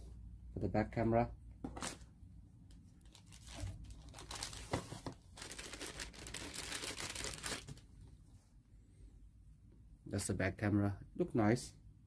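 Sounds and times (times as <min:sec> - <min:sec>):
plastic packaging crinkling: 0:03.0 - 0:07.9.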